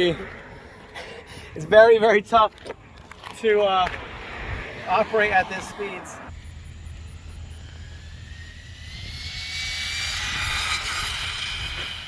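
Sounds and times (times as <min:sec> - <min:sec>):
rc car motor whine: 0:06.3 - 0:12.0.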